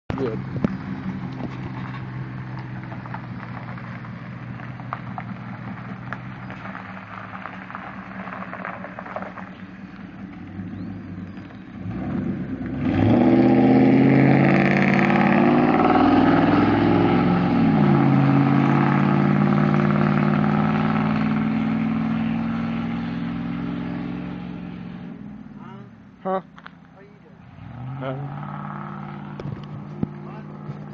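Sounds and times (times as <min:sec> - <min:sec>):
truck engine running: 0:28.0 - 0:30.9.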